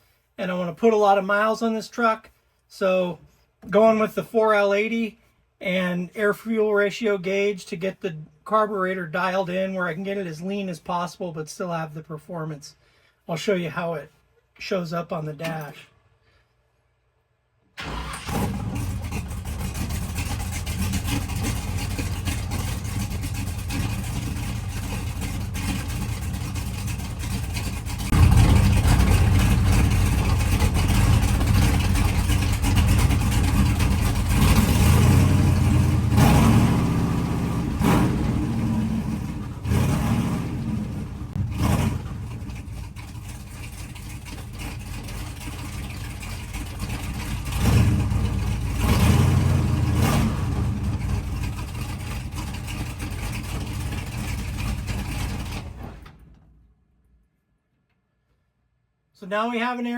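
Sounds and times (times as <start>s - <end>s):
truck engine running: 17.8s - 56.0s.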